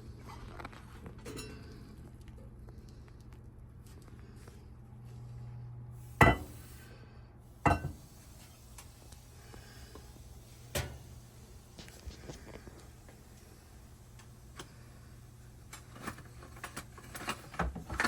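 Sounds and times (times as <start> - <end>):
low steady hum: 0.0 - 18.0
dishes knocking: 6.2 - 6.5, 7.7 - 8.0.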